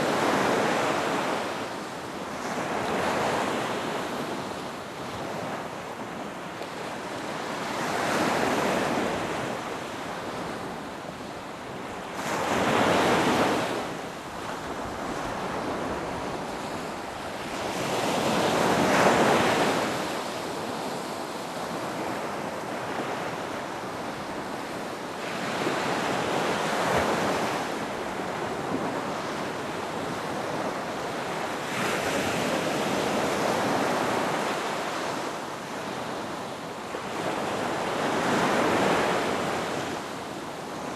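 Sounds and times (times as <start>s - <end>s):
waves surging and washing out: 21.9s - 40.9s.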